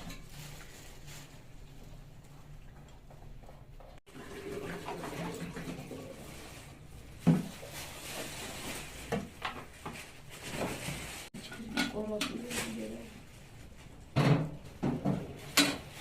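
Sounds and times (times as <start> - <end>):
water running: 0.0 - 8.7.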